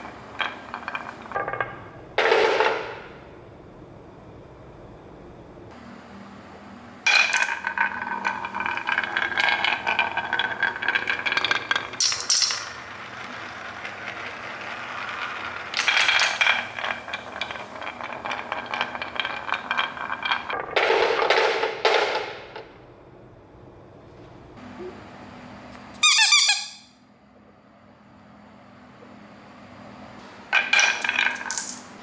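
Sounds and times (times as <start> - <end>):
toy pieces rattling and clinking: 7.1 - 20.6, 30.6 - 31.9.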